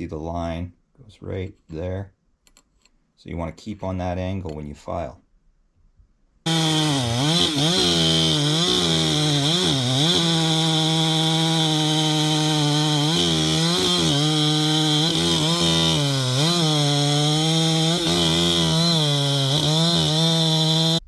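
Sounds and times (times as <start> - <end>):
chainsaw cutting wood: 6.5 - 21.0.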